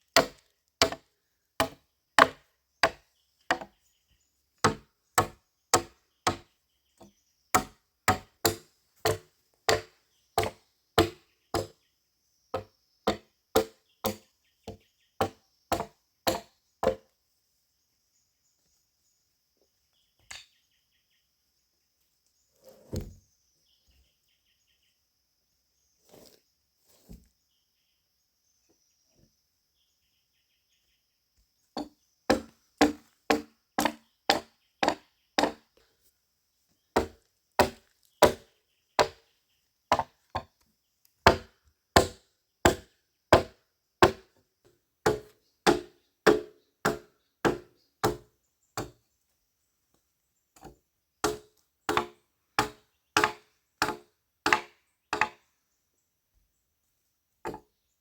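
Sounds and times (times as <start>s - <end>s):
faint insects: 0.0s - 58.0s
blade chopping wood: 0.2s - 1.0s, 1.6s - 3.7s, 4.6s - 6.4s, 7.6s - 11.7s, 12.6s - 14.3s, 15.2s - 17.0s, 31.8s - 35.6s, 37.0s - 39.2s, 41.3s - 44.3s, 45.0s - 48.2s, 48.8s - 49.0s, 50.6s - 55.4s.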